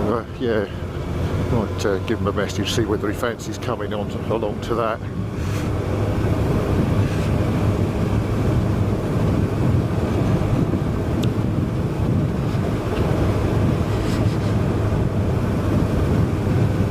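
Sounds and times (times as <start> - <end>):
wind noise on microphone: 4.0 - 16.9.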